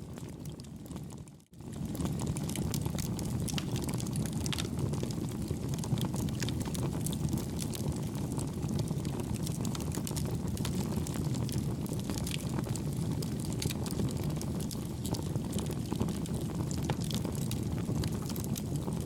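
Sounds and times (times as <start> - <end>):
campfire crackling: 1.6 - 19.0.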